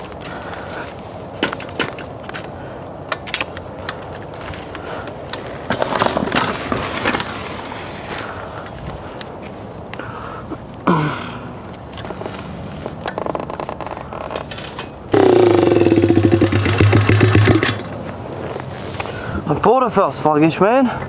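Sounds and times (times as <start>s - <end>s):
bike frame rattling on dirt trail: 3.2s - 8.7s, 12.0s - 18.0s.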